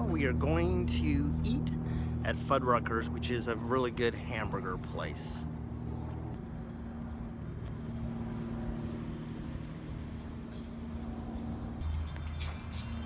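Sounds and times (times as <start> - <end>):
car engine hum: 0.0 - 13.0
road rumble: 0.0 - 13.0.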